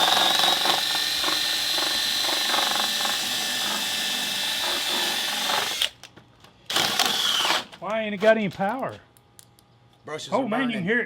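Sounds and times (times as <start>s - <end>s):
hammer drill whining: 0.0s - 6.0s, 6.7s - 7.8s.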